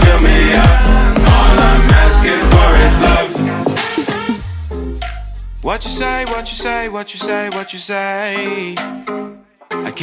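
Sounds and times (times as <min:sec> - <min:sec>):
electronic dance music bass beat: 0:00.0 - 0:07.8.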